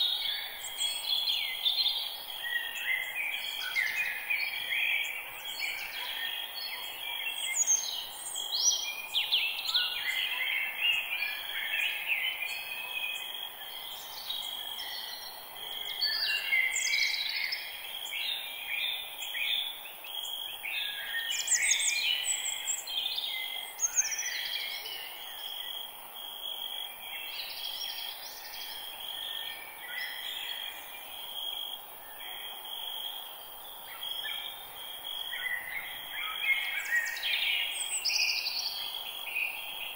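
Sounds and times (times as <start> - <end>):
birds singing: 0.0 - 25.8, 27.0 - 31.3, 33.9 - 39.9.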